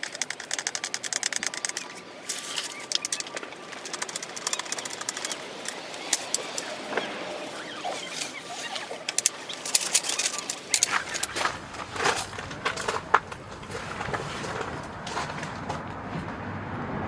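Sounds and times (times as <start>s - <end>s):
faint bird calling: 0.0s - 11.7s
camping gear clattering: 0.0s - 16.2s.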